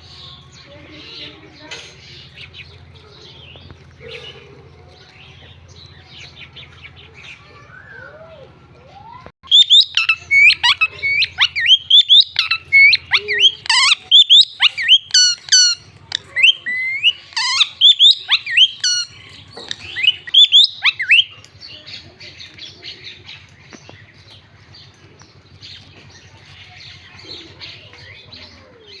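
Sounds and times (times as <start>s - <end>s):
parrot screeching: 9.5s - 21.3s
parrot soft chattering: 9.5s - 21.4s.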